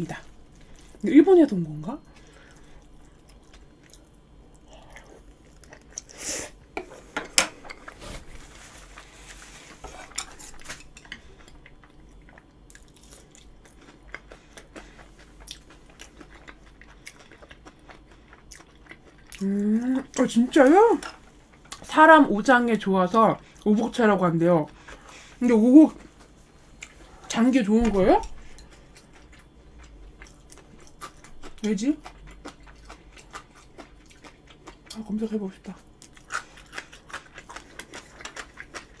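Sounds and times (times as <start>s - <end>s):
person chewing food: 2.1s - 20.2s, 28.3s - 35.0s, 35.8s - 39.0s.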